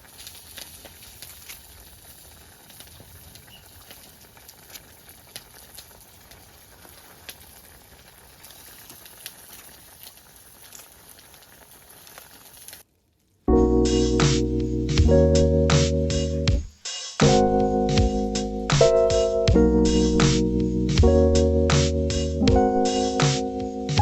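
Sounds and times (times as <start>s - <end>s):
food bubbling and sizzling: 0.0s - 12.9s.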